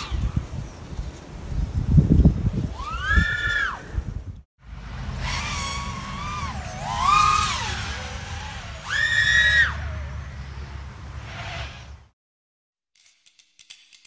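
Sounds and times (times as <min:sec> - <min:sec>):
drone motors whining: 0:04.7 - 0:12.1.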